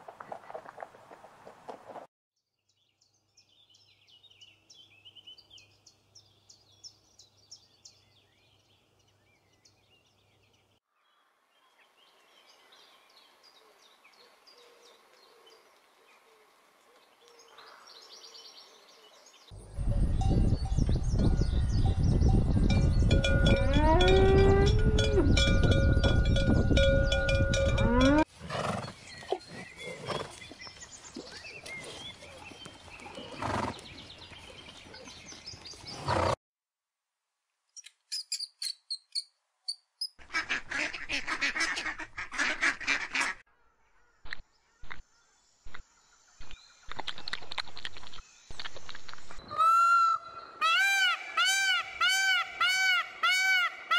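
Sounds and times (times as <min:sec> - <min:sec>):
cow mooing: 0:23.4 - 0:25.4, 0:27.6 - 0:28.2.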